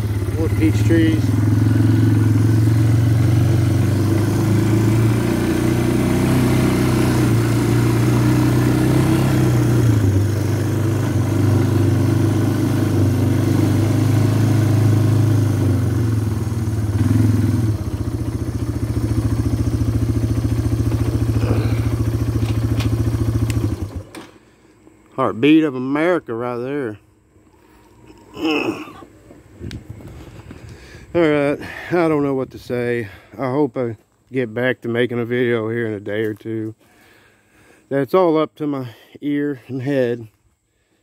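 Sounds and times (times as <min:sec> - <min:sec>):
quad bike engine running: 0:00.0 - 0:24.3.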